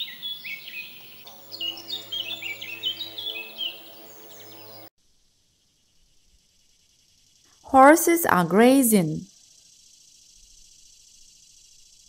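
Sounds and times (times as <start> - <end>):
small birds chirping: 0.0 - 4.9.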